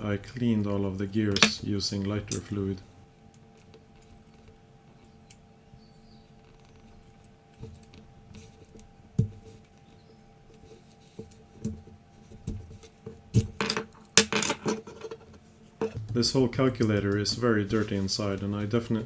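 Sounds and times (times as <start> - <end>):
faint steady hum: 0.0 - 19.0
small metal parts clinking: 13.4 - 16.0.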